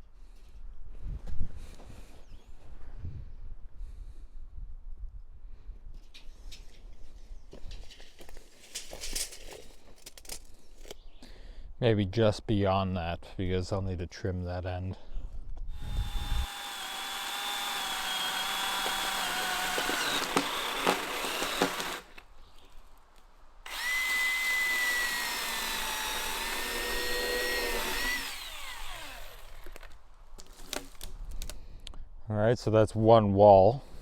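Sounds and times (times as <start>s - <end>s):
chainsaw cutting log: 15.7s - 22.3s, 23.7s - 31.1s.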